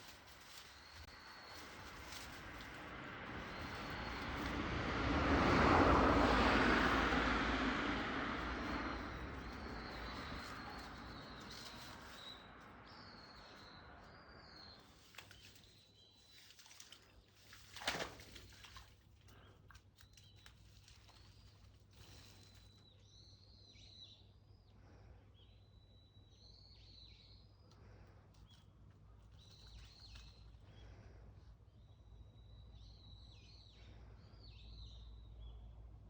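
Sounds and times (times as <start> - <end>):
small birds chirping faintly: 0.0 - 4.6, 8.4 - 35.7
vehicle passing: 0.1 - 14.8.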